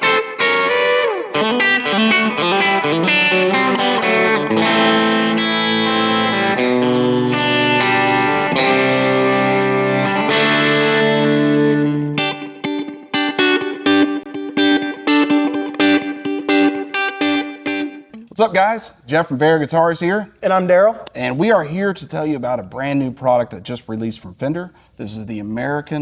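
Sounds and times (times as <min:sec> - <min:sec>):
overdriven electric guitar: 0:00.0 - 0:18.4.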